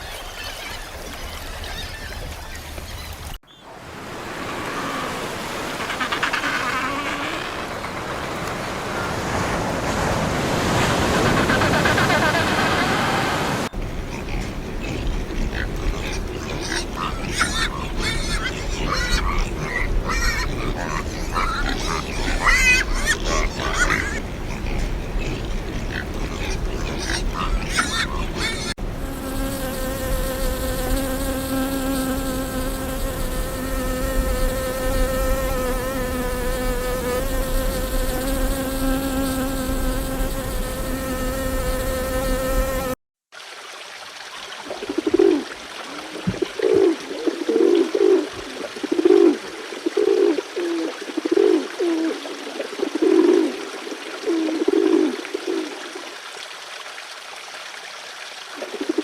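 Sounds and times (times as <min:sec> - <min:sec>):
insect buzzing drone: 0:04.2 - 0:08.1, 0:23.3 - 0:43.0.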